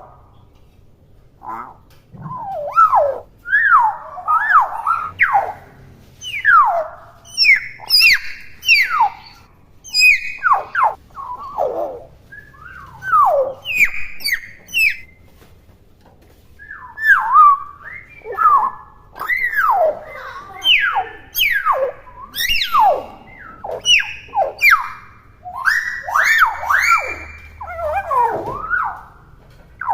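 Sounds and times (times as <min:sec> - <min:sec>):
bird whistled calls: 0:02.2 - 0:15.2, 0:16.6 - 0:29.2.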